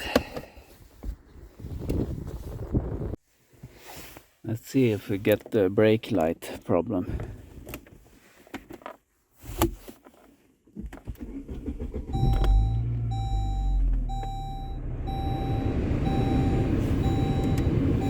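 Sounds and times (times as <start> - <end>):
car engine starting and idling: 11.0 - 18.0
dashboard warning chime: 12.2 - 18.0.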